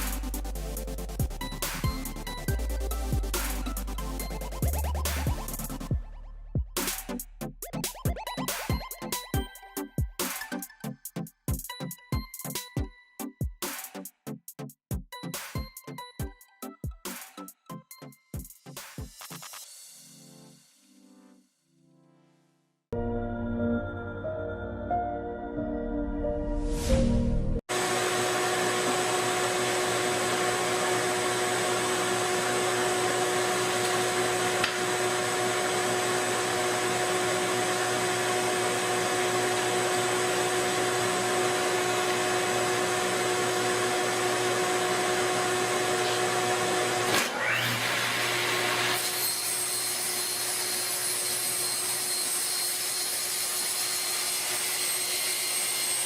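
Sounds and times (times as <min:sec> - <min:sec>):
power tool motor whining: 0:27.7 - 0:56.0.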